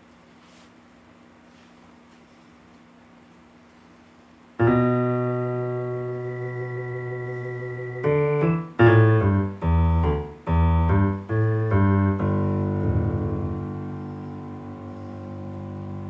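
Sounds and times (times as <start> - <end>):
piano chords: 4.6 - 16.0.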